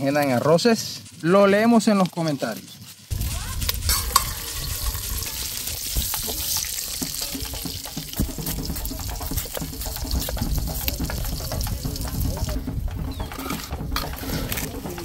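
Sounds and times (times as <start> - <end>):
stirring clicks and scrapes: 0.2 - 15.0
meat sizzling in hot oil: 3.0 - 13.4.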